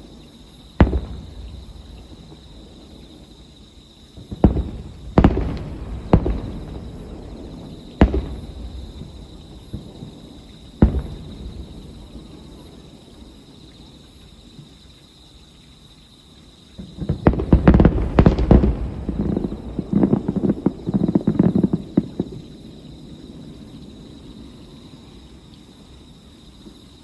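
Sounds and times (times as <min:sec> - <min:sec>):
fireworks booming and crackling: 0:00.0 - 0:03.4, 0:04.1 - 0:13.4, 0:16.8 - 0:24.0.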